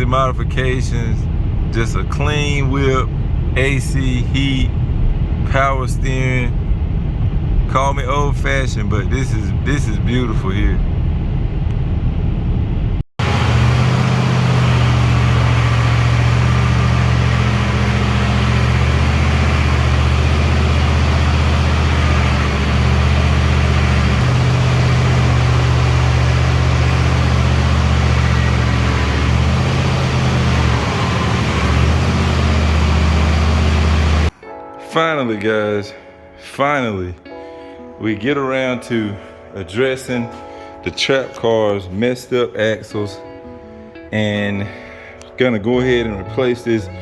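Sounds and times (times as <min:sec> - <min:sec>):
car engine droning: 0:00.0 - 0:34.4.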